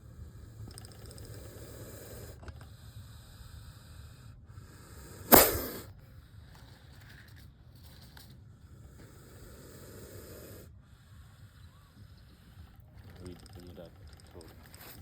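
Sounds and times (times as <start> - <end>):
snake hissing: 0.1 - 6.0, 8.7 - 12.8.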